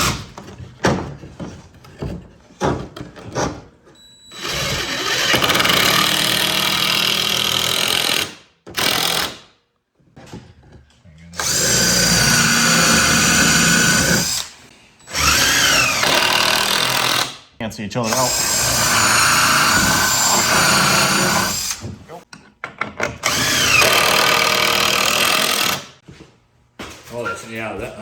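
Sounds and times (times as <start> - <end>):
power tool working wood: 4.4 - 8.2, 11.4 - 17.3, 18.0 - 21.9, 23.2 - 26.0.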